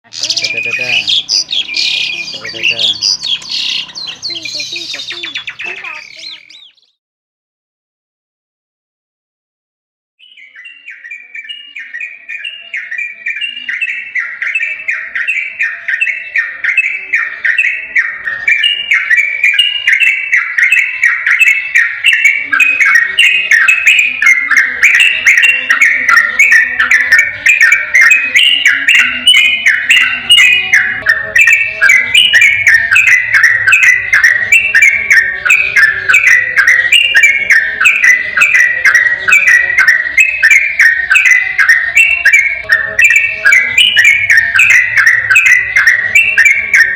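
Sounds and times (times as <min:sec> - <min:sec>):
bulbul singing bubbling phrases: 0:00.1 - 0:06.8, 0:22.0 - 0:46.9.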